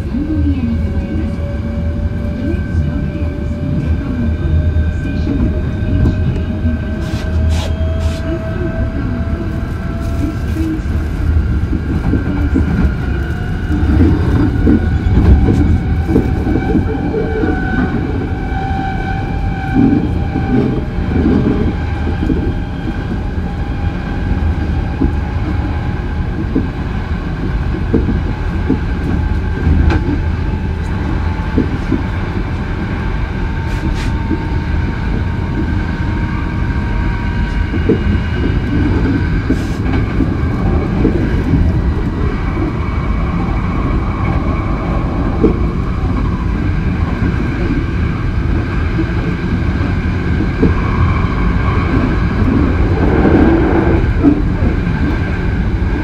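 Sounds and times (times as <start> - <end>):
train wheels rumbling on rail: 0.0 - 56.0
train whine rising in pitch: 1.0 - 10.2, 50.6 - 56.0.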